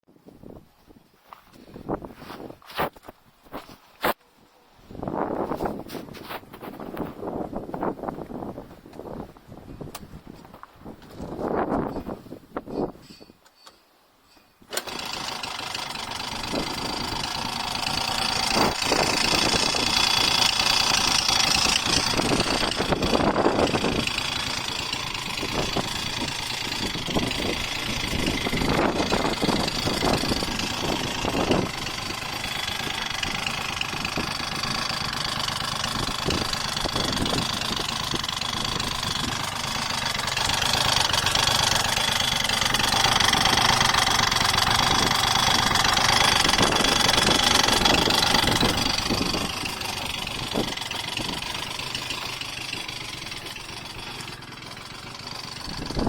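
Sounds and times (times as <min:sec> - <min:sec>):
engine knocking: 0:14.7 - 0:56.0
scooter engine running: 0:14.7 - 0:56.0.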